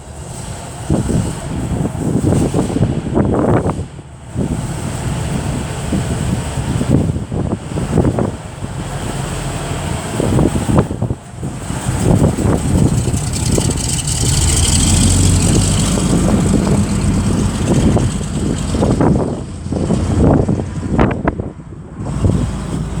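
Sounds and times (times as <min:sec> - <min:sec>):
heavy vehicle engine rumbling: 0:00.0 - 0:23.0
wind buffeting microphone: 0:00.0 - 0:23.0.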